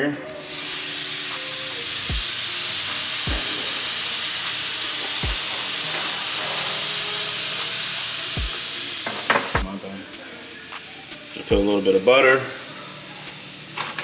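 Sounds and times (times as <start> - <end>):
shrimp sizzling in a skillet: 0.3 - 14.0.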